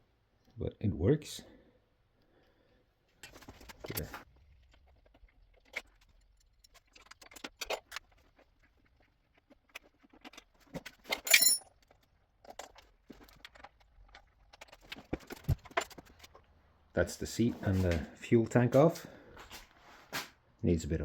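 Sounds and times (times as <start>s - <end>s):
tools clicking and clinking: 9.7s - 16.4s
metallic clank and scrape: 11.1s - 11.6s.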